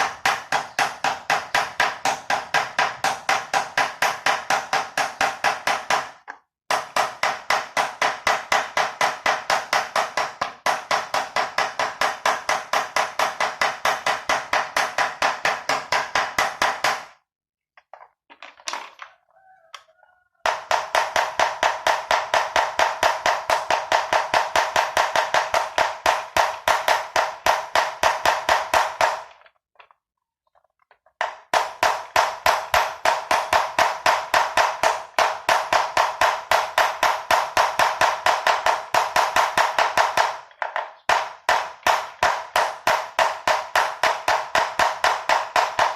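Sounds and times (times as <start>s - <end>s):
hammer striking metal: 0.0s - 17.2s, 31.2s - 45.9s.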